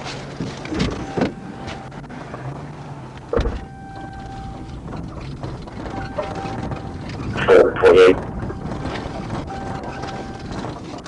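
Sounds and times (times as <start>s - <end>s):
vehicle engine idling: 0.0s - 11.0s
sharp clunks: 3.2s - 7.4s.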